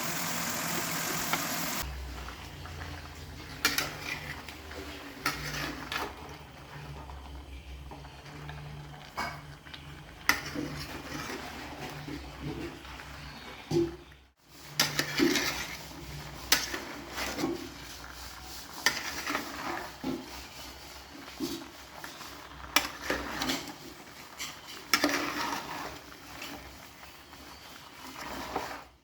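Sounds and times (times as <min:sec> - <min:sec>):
spoon stirring in metal pot: 0:02.8 - 0:13.4, 0:14.5 - 0:28.9.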